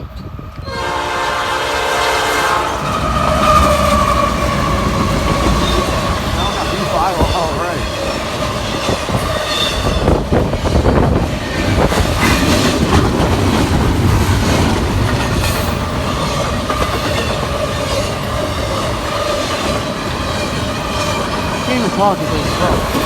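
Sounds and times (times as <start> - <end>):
freight train wheels rolling: 0.0 - 23.0
wheels clicking over rail joints: 2.8 - 23.0.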